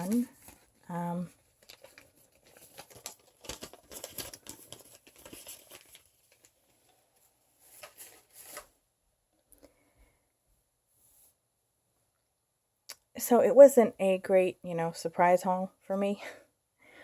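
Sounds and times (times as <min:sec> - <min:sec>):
packaging wrappers rustling: 0:00.0 - 0:08.8.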